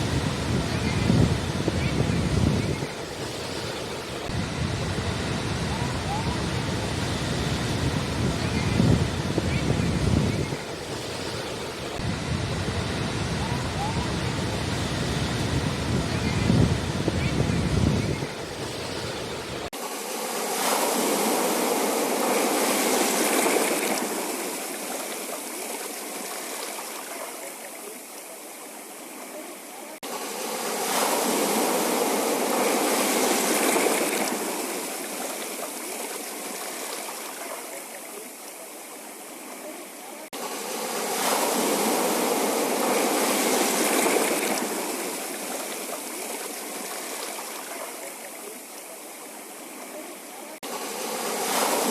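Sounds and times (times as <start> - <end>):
sea waves on rocky shore: 0.0 - 51.9.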